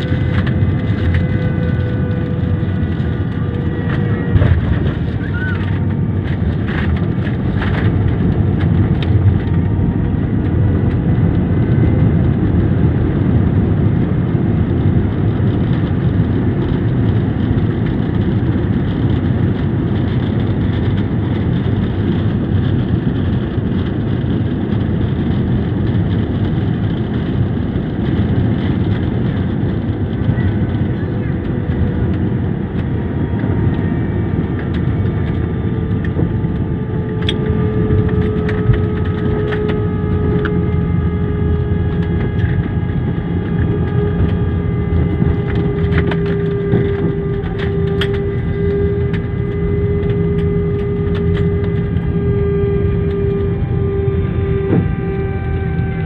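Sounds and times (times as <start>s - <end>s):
airliner landing rumble: 0.0s - 56.0s.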